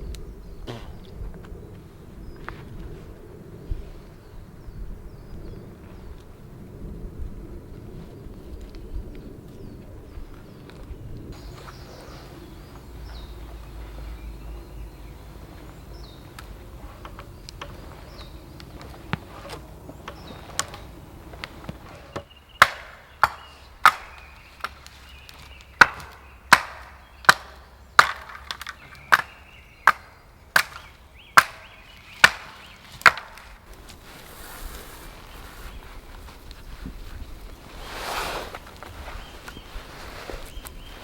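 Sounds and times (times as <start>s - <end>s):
blade chopping wood: 21.6s - 33.6s.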